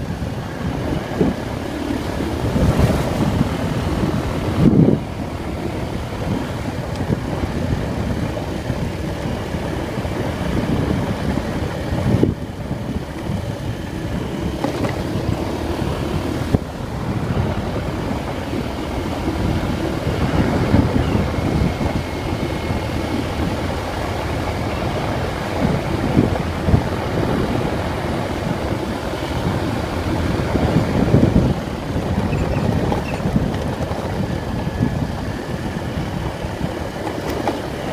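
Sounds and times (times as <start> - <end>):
motorcycle engine running: 0.0 - 37.9
wind buffeting on microphone: 0.0 - 37.9.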